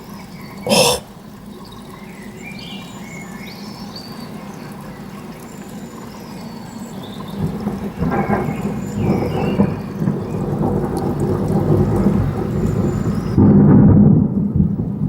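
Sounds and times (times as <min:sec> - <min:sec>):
outdoor background noise: 0:00.0 - 0:15.0
person exclaiming: 0:00.7 - 0:01.1.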